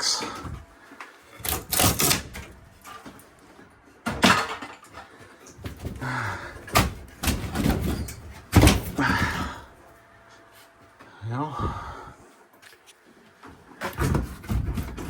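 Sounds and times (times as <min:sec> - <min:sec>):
demolition bangs and clanks: 0:04.0 - 0:09.7, 0:13.8 - 0:15.0.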